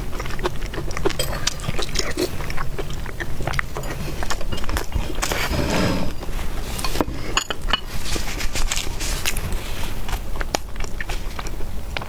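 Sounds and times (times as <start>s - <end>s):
eating noises: 0.0s - 12.0s
utensils clinking against bowl: 0.9s - 9.4s.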